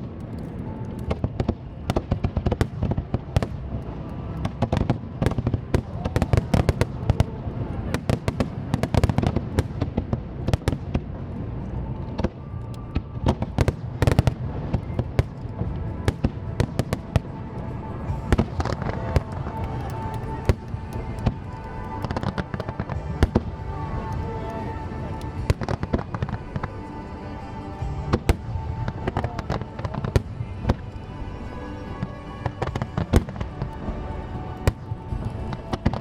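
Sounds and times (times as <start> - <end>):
music playing: 0.0 - 36.0.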